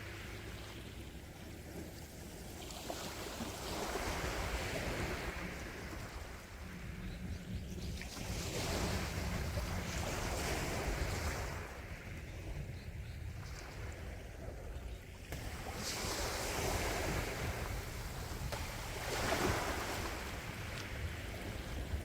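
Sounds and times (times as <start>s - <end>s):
sea waves washing onto shore: 0.0s - 6.8s, 15.3s - 22.0s
wind rumble on microphone: 0.0s - 22.0s.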